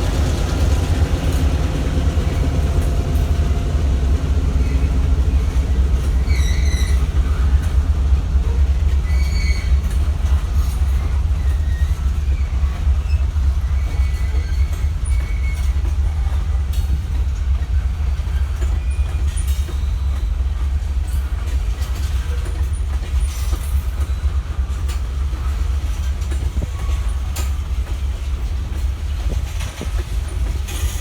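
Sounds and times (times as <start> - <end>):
train rumbling on track: 0.0 - 31.0
wheels squealing: 4.6 - 7.6.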